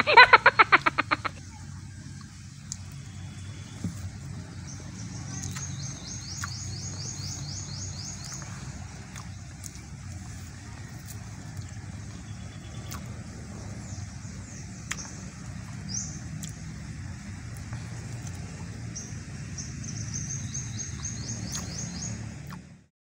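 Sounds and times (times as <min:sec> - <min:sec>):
birds chirping: 0:00.0 - 0:22.8
low outdoor rumble: 0:00.0 - 0:22.9.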